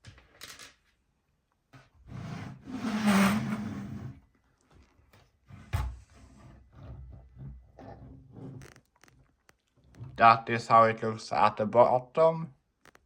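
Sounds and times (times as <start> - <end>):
plastic model rubbing and scraping: 2.1 - 4.2, 6.0 - 10.2.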